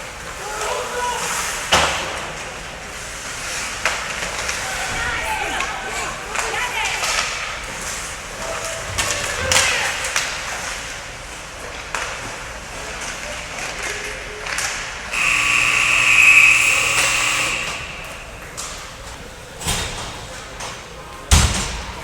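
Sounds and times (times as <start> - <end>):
arena horn blast: 15.1 - 21.2.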